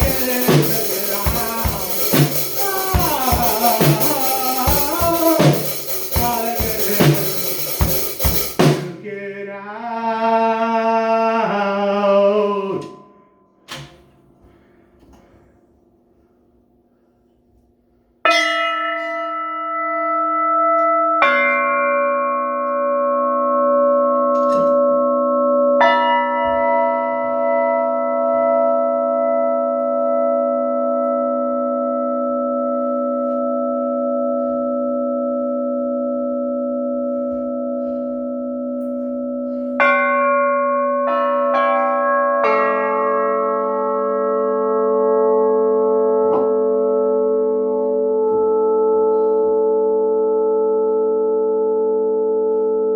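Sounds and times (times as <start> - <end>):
bells ringing: 0.0 - 8.7, 18.3 - 51.4.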